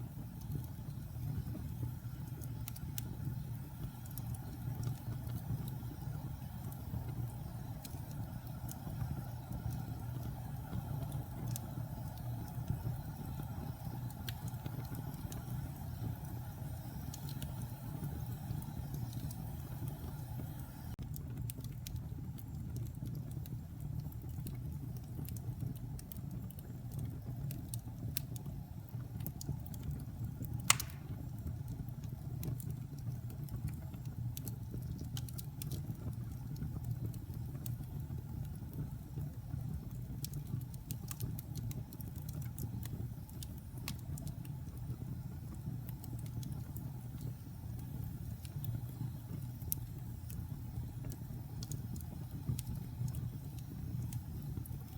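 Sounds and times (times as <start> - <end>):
fire rumbling in fireplace: 0.0 - 54.9
wood crackling: 29.8 - 31.4
loud sharp pop of burning log: 30.7 - 31.3.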